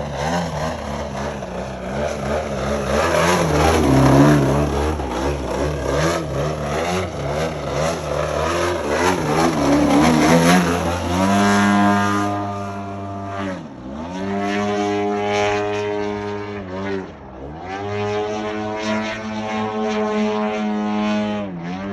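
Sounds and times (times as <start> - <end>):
model plane engine running: 0.0 - 13.6.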